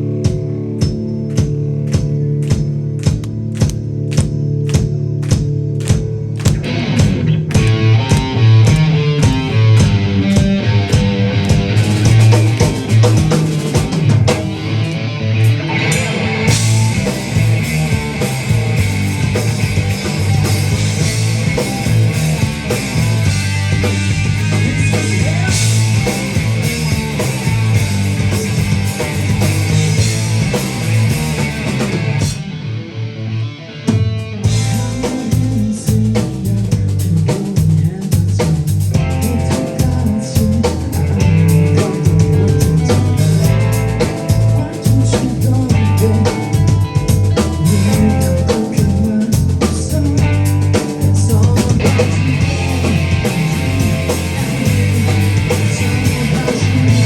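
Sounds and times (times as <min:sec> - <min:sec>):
drum kit: 0:00.0 - 0:32.6, 0:33.9 - 0:57.0
rock band playing: 0:00.0 - 0:57.0.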